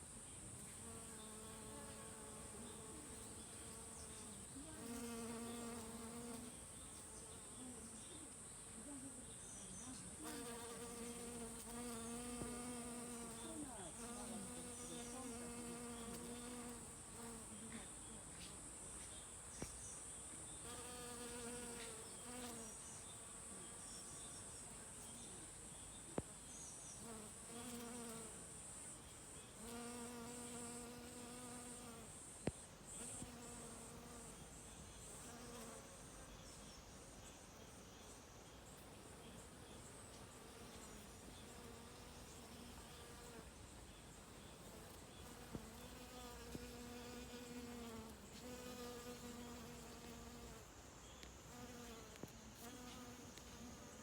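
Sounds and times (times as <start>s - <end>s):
bees buzzing: 0.7s - 6.6s, 29.6s - 32.1s, 44.3s - 54.0s.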